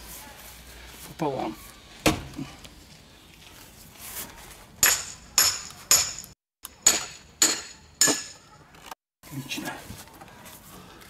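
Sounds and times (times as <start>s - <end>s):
sharp metallic strikes on a log: 4.8s - 8.4s.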